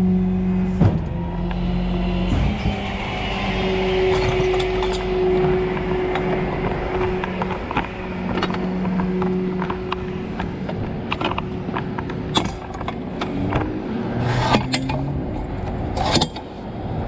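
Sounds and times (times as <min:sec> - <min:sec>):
vehicle engine running: 0:00.0 - 0:17.0
metallic clicks and clanks: 0:04.1 - 0:16.6.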